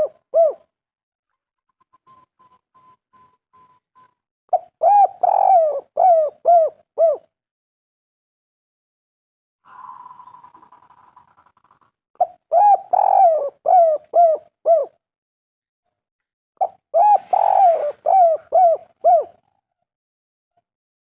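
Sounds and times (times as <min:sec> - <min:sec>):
dove cooing: 0:00.0 - 0:00.7, 0:04.5 - 0:07.3, 0:12.2 - 0:15.0, 0:16.6 - 0:19.6.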